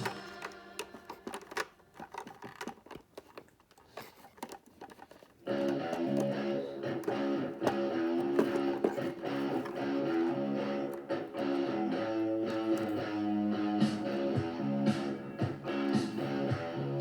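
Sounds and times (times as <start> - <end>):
plastic pieces clicking: 0.0 - 13.1
background guitar music: 5.4 - 17.0.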